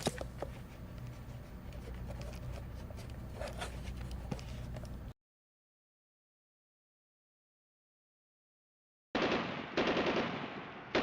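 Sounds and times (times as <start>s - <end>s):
steady low hum: 0.0s - 5.2s.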